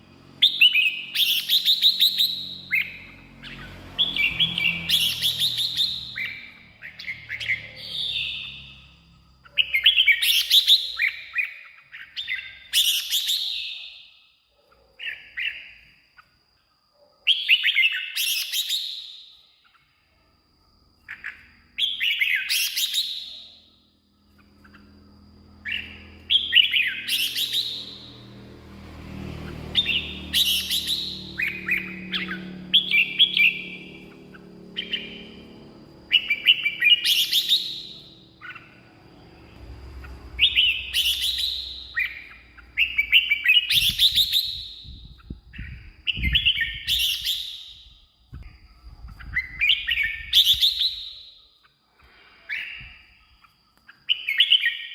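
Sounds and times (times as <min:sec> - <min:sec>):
bird singing whistled phrases: 0:00.4 - 0:14.0, 0:25.6 - 0:28.1, 0:29.7 - 0:35.4, 0:36.1 - 0:38.8, 0:40.2 - 0:48.0, 0:49.2 - 0:51.4, 0:54.0 - 0:54.9.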